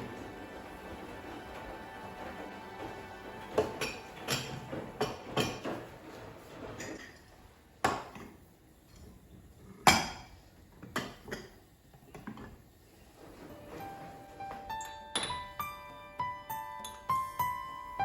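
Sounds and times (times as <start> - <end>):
dishes clinking and knocking: 0.0 - 8.4, 9.8 - 12.6, 13.7 - 15.6.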